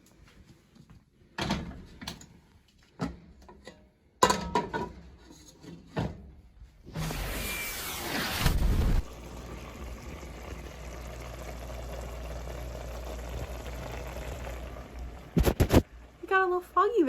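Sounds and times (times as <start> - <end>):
knocks and clatters of dishes: 3.0 - 6.2
running tap: 8.5 - 15.8.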